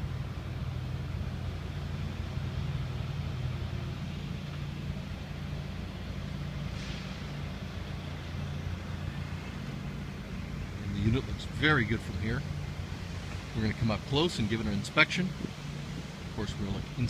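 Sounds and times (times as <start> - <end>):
diesel truck engine idling: 0.0 - 17.0
brief hiss: 6.6 - 7.5.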